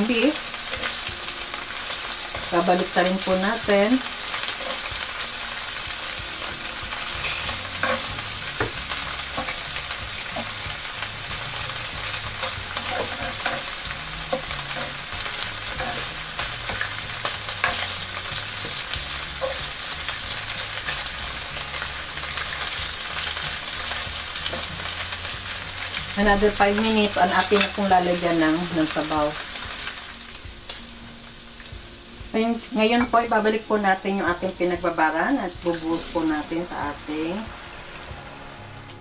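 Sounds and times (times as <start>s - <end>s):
beef sizzling in a frying pan: 0.0s - 39.0s
metal tongs clicking on pan: 27.4s - 27.8s.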